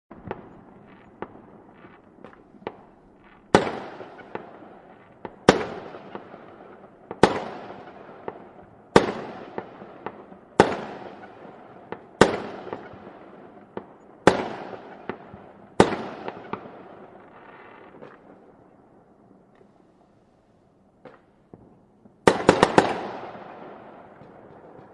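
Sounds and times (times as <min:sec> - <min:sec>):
fireworks popping: 0:00.1 - 0:08.4, 0:13.7 - 0:18.5, 0:21.0 - 0:24.9
fireworks bangs with echoing rumble: 0:00.1 - 0:19.7, 0:21.0 - 0:24.9.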